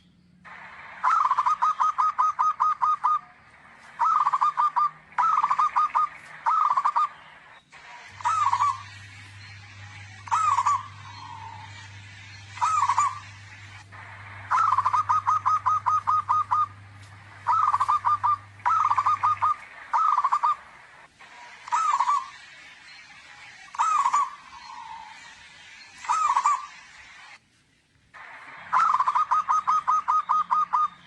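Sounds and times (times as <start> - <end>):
dove cooing: 1.0 - 7.2, 8.2 - 22.4, 23.7 - 25.2, 26.1 - 26.7, 28.7 - 31.0.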